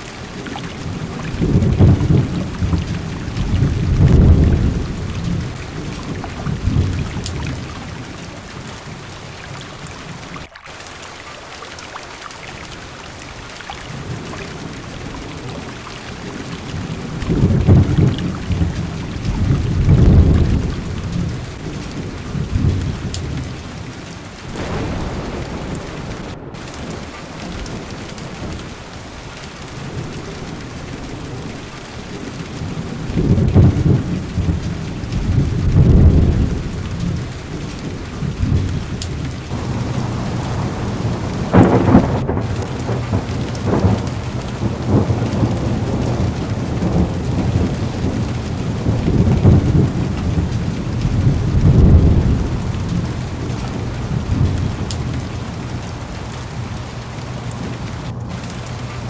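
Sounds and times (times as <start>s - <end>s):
thunder rumbling: 0.0s - 10.2s, 12.9s - 59.0s
heavy rain on car window: 0.0s - 59.0s
sharp thunderclap: 0.8s - 7.8s, 16.8s - 23.4s, 24.5s - 31.5s, 32.6s - 55.3s.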